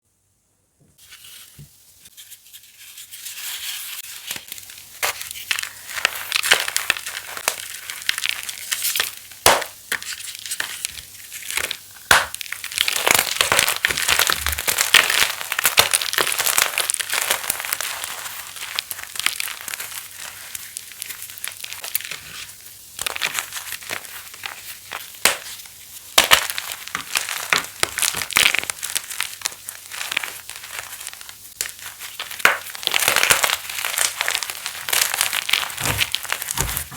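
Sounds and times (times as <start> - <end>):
chalk crunching and crackling: 1.0 - 36.9.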